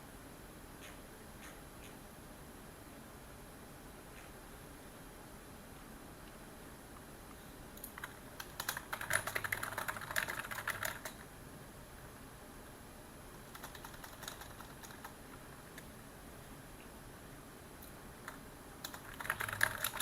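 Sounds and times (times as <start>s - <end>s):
keyboard typing: 7.8s - 11.3s, 13.4s - 15.8s, 18.2s - 20.0s.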